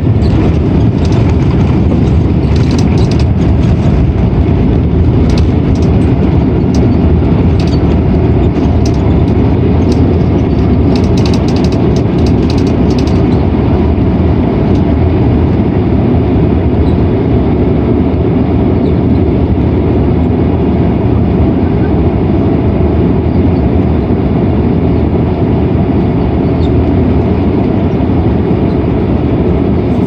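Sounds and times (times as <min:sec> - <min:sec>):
engine and tyre rumble: 0:00.0 - 0:30.0
cabin fittings rattling: 0:05.2 - 0:13.4.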